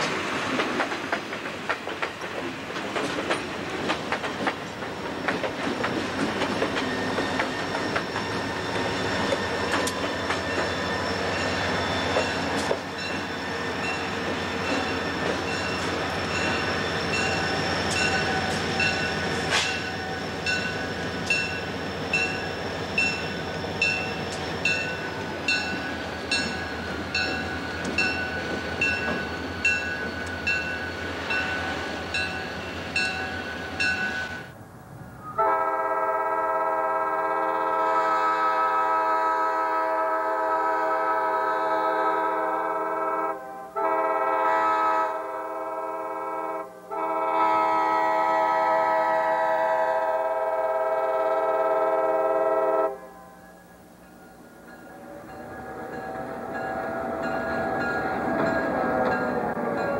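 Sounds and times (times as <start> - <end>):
train wheels clicking over rails: 0.0 - 34.6, 54.4 - 59.9
wheel flanges squealing: 4.2 - 34.6
locomotive bell ringing: 6.4 - 34.5, 53.0 - 59.9.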